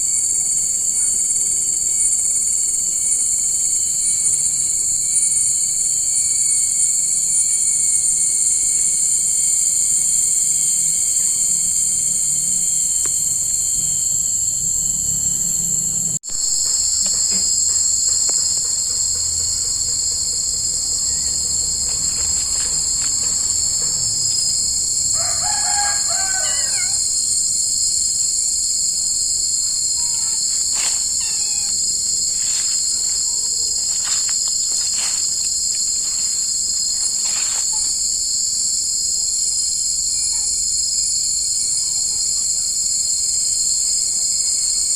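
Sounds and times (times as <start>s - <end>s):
crickets and insects chirping: 0.0s - 44.9s.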